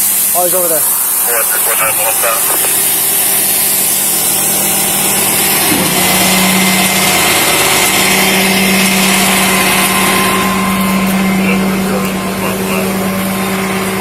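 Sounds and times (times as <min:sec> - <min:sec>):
constant hiss: 0:00.0 - 0:05.6
vehicle engine idling: 0:00.0 - 0:14.0.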